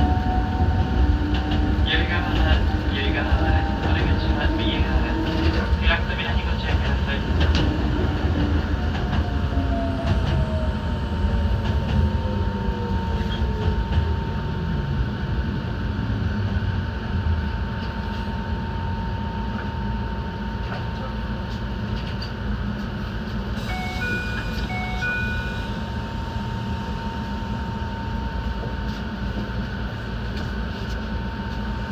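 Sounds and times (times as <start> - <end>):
train wheels rumbling: 0.0 - 18.4
two-tone electronic chime: 23.6 - 26.2
constant high tone: 23.6 - 27.6.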